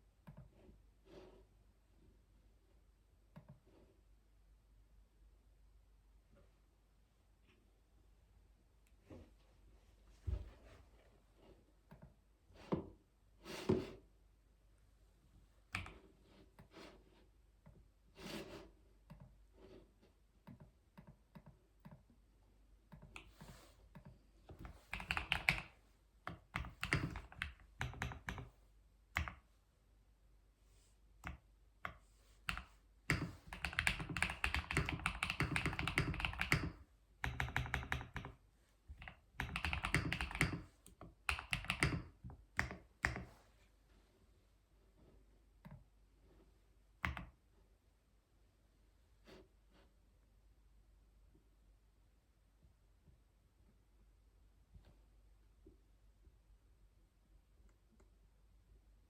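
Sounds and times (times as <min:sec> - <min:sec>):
typing on computer keyboard: 0:24.6 - 0:25.7, 0:26.3 - 0:28.5, 0:32.5 - 0:38.4, 0:39.0 - 0:43.3.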